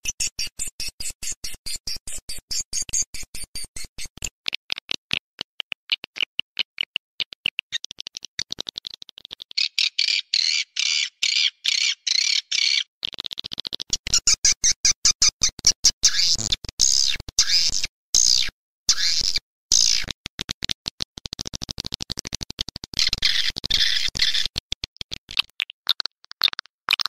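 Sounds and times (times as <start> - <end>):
swiftlet chirps and twittering: 9.6 - 12.9.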